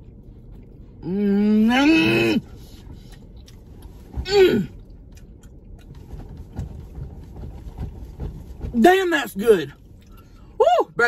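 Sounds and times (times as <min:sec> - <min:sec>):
soft chewing: 0:00.0 - 0:01.1, 0:02.5 - 0:07.9, 0:09.8 - 0:10.5.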